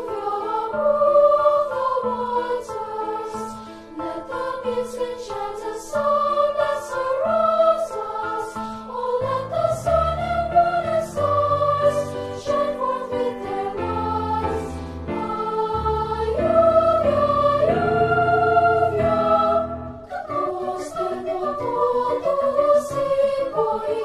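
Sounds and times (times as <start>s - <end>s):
choir singing in parts: 0.0s - 24.0s.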